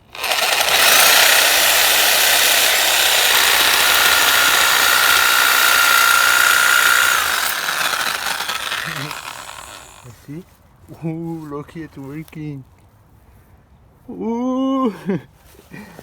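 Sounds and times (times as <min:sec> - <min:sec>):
power saw cutting metal: 0:00.0 - 0:10.1.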